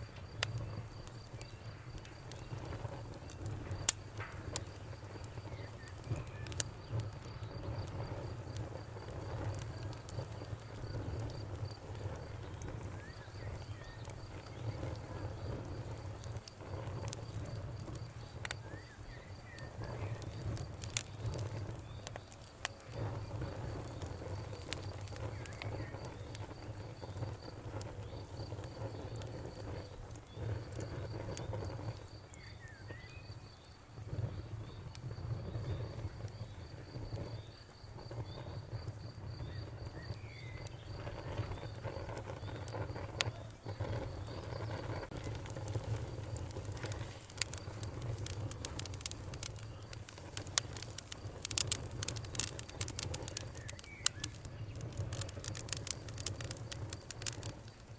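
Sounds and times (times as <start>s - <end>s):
campfire flames rumbling: 0.0s - 57.9s
crickets chirping: 0.0s - 57.9s
fire crackling and popping: 0.0s - 57.9s
faint bird chirps: 18.2s - 20.4s, 32.2s - 34.9s, 39.4s - 44.7s, 53.3s - 55.2s.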